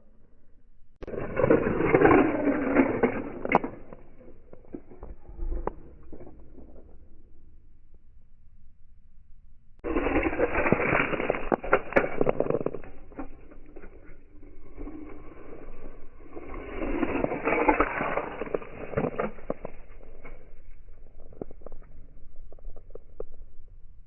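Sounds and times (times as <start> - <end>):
toy cars rolling and crashing: 1.0 - 6.8, 9.8 - 15.5.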